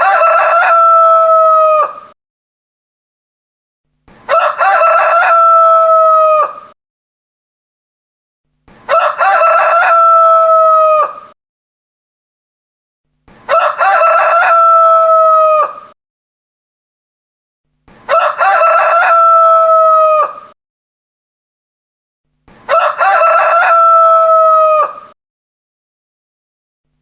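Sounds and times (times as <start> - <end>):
rooster crowing: 0.0 - 2.1, 4.3 - 6.8, 8.9 - 11.4, 13.5 - 16.0, 18.1 - 20.6, 22.7 - 25.2.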